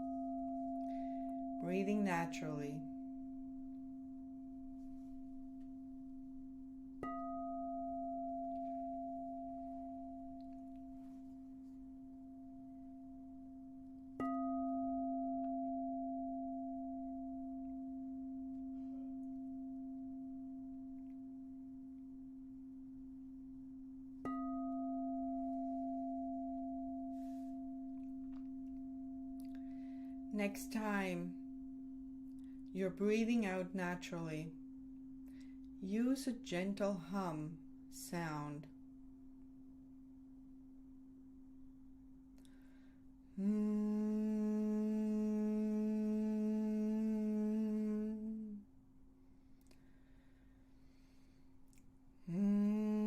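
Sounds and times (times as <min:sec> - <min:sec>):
singing bowl ringing: 0:00.0 - 0:36.6.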